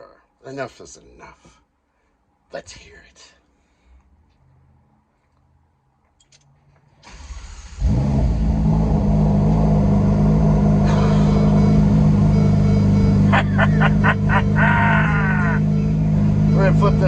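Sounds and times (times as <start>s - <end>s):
car engine idling: 7.2s - 17.0s.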